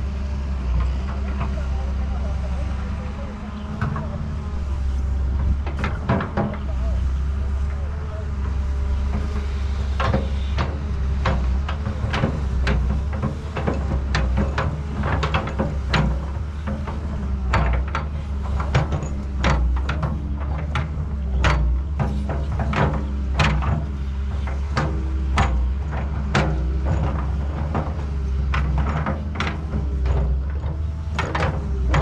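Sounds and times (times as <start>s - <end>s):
excavator motor humming: 0.0s - 32.0s
excavator clicks and knocks: 0.6s - 32.0s.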